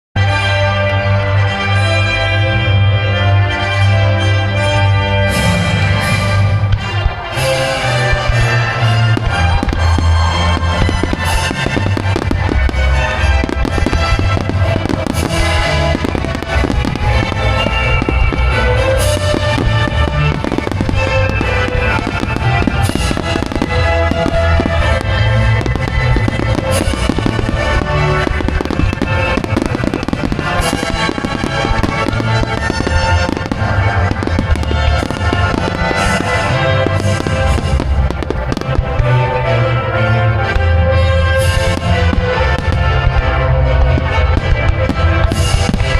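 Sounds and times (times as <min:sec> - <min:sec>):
firework crackling: 0:05.3 - 0:45.9
firework shells bursting: 0:06.8 - 0:39.2.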